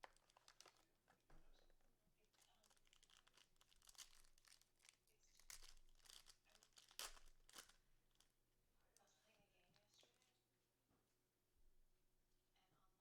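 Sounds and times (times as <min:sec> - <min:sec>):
wrapper tearing and crinkling: 0:00.0 - 0:00.9, 0:02.3 - 0:08.2.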